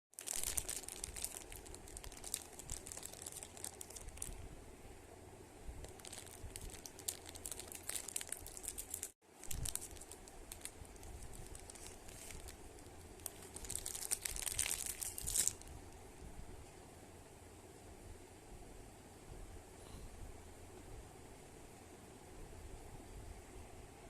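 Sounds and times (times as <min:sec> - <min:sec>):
plastic wrapper crinkling and tearing: 0:00.2 - 0:04.4, 0:05.8 - 0:15.8.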